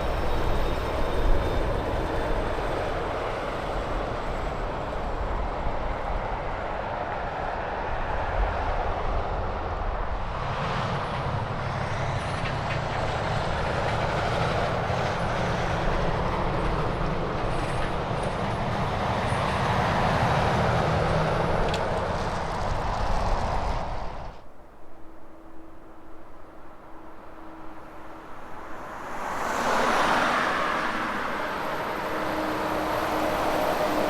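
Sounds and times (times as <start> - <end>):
tyre and road noise: 11.0 - 24.5.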